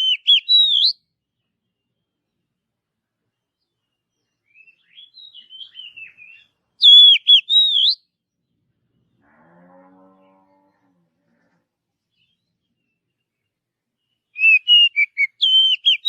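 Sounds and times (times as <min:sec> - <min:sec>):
bird twittering softly: 0:00.0 - 0:02.2, 0:03.3 - 0:09.2, 0:12.1 - 0:16.0
faint low drawn-out bird call: 0:00.0 - 0:16.0
bird whistling swooping notes: 0:14.4 - 0:16.0.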